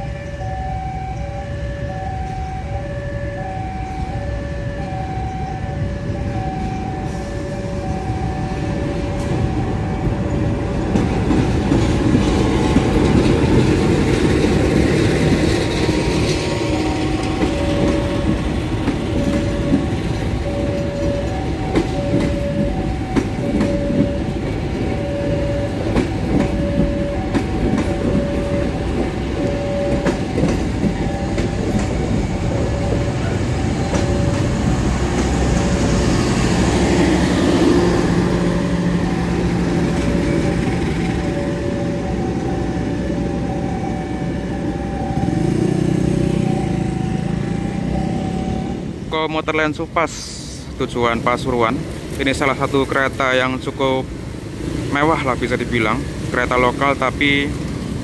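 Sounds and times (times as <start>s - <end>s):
level crossing warning signal: 0.0s - 54.2s
wheels clicking over rail joints: 9.1s - 36.0s.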